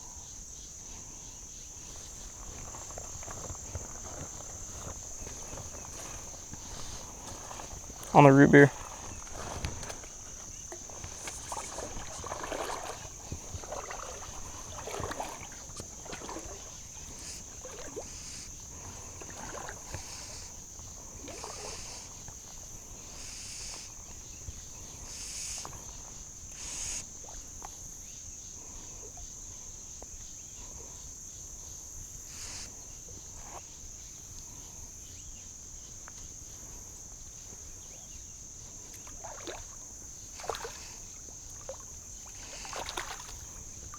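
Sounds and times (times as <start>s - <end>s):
river water splashing: 1.7s - 25.9s, 38.8s - 43.9s
high-pitched insect drone: 2.0s - 18.7s.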